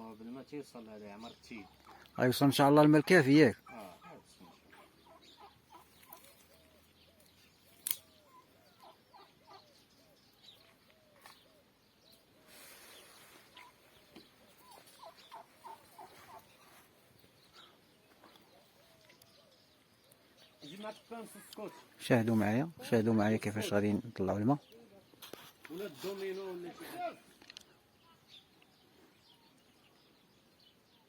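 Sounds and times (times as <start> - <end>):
sharp click: 7.8 - 8.1
chickens clucking: 14.6 - 16.7.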